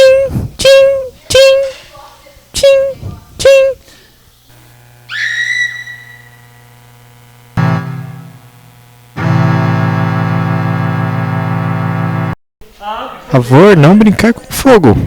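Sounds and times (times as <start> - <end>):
keyboard chord struck: 7.6 - 12.4
organ-like chord held: 7.6 - 12.4.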